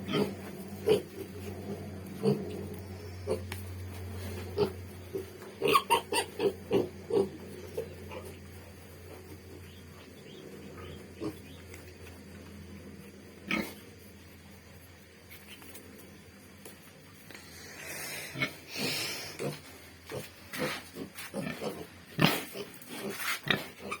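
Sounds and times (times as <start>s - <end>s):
pigs grunting: 0.0s - 8.5s, 17.4s - 24.0s.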